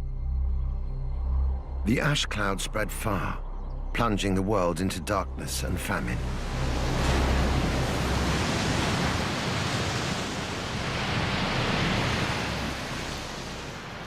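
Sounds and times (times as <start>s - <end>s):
steady rushing noise: 5.7s - 14.0s.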